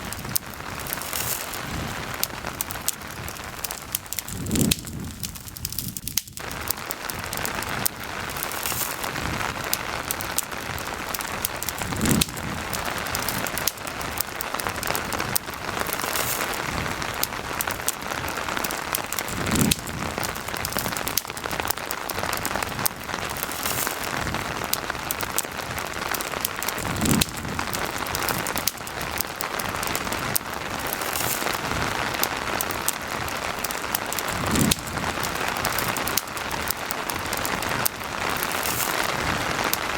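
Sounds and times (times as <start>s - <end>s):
campfire crackling: 0.0s - 39.9s
steady rain hiss: 0.0s - 39.9s.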